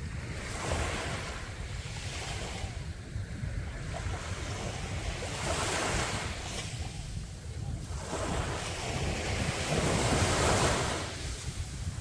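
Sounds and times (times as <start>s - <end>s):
sea waves washing onto beach: 0.0s - 12.0s
wind rumble on microphone: 0.0s - 12.0s.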